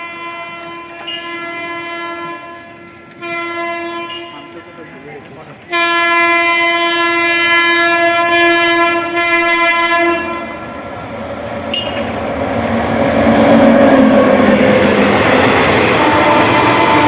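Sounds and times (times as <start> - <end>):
train horn blast: 0.0 - 10.8, 15.4 - 17.0
train rumbling past: 0.0 - 17.0.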